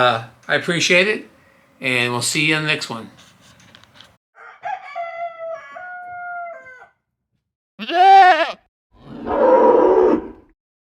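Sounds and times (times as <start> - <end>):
rooster crowing: 4.4 - 7.1
goat bleating: 7.8 - 8.7.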